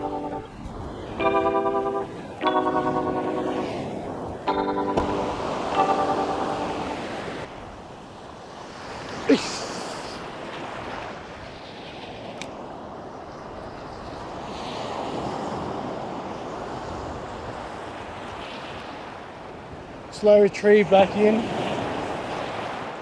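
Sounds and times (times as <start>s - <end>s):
wind buffeting microphone: 0.0s - 2.6s
ocean surf washing onto beach: 0.0s - 12.0s
sharp sound dropping in pitch: 1.2s - 7.1s.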